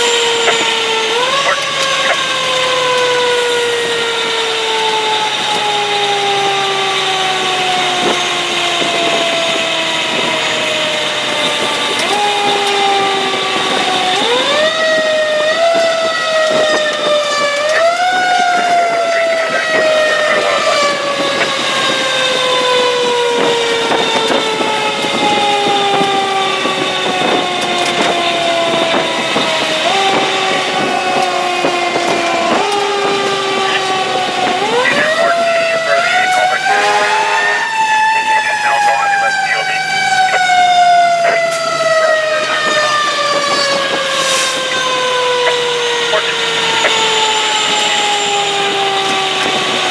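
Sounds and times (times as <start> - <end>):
fire engine siren: 0.0 - 49.9.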